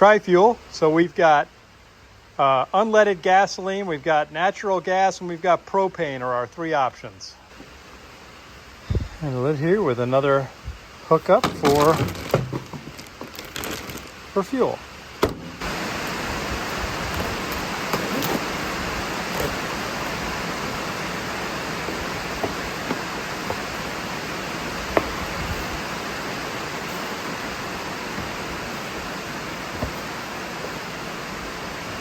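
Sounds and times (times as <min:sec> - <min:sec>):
heavy rain falling: 0:10.9 - 0:32.0.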